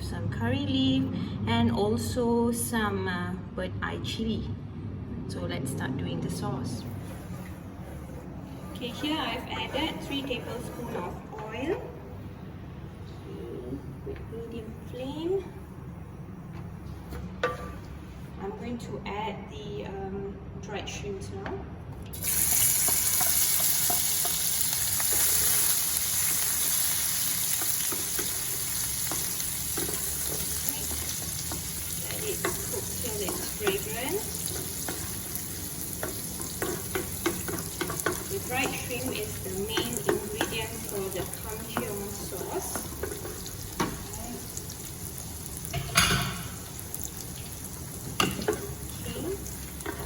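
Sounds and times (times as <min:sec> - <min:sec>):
stirring taps and scrapes: 0:07.0 - 0:11.9, 0:22.5 - 0:25.8, 0:27.3 - 0:44.8, 0:48.1 - 0:50.0
shrimps sizzling in hot oil: 0:22.2 - 0:50.0.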